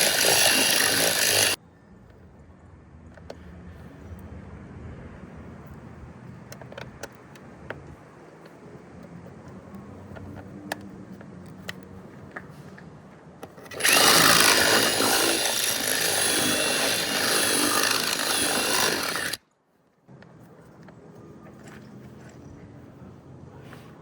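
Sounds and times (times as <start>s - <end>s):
power drill drilling metal: 0.0s - 1.6s, 13.6s - 19.4s.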